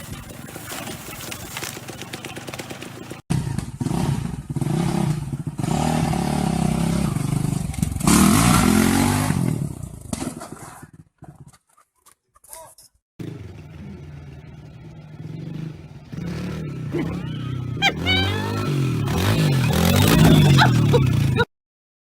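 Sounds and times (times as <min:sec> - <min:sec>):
dirt bike engines revving: 0:00.6 - 0:09.9, 0:13.2 - 0:21.5
loud engine rising and falling: 0:01.6 - 0:10.0, 0:13.2 - 0:21.5.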